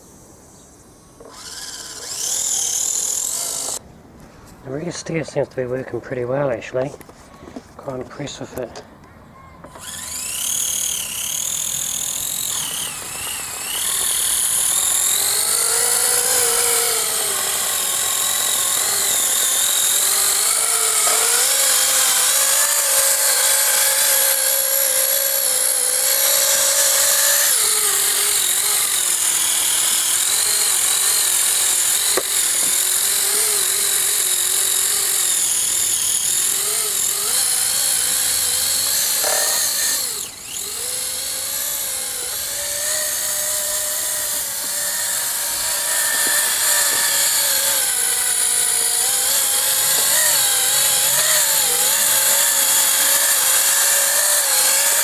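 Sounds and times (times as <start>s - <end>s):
electric motor whining: 0.0s - 3.8s, 9.6s - 55.0s.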